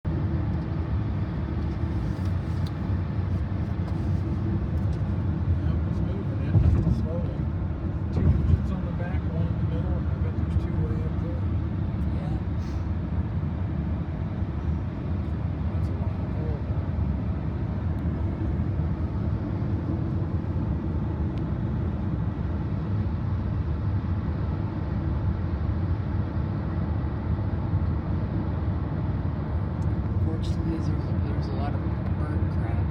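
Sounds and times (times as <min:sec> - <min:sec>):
vehicle road and engine rumble: 0:00.0 - 0:32.9.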